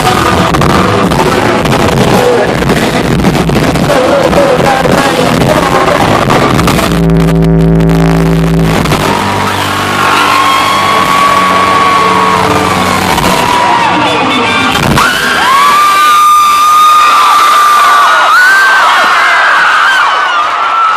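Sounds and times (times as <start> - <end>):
live country band playing loud: 0.0 - 15.7.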